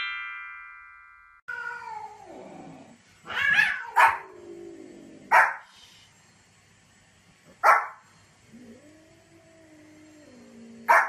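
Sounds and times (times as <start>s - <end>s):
small dog barking: 3.3s - 4.3s, 5.3s - 5.7s, 7.6s - 8.0s.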